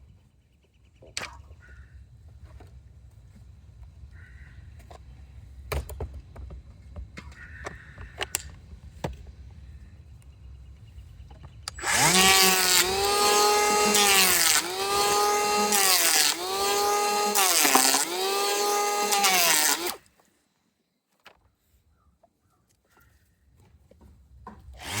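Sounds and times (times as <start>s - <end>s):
power saw cutting wood: 11.7s - 20.0s, 24.8s - 25.0s.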